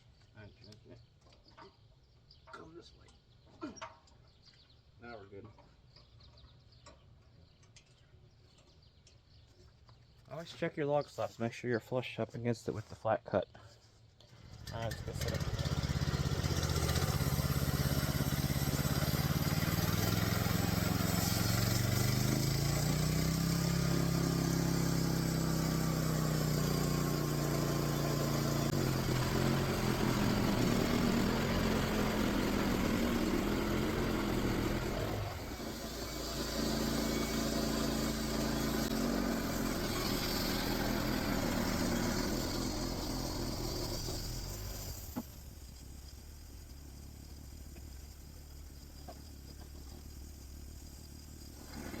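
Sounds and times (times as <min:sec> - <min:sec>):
small gasoline engine running: 0:14.3 - 0:52.0
band blade cutting log: 0:16.8 - 0:45.2.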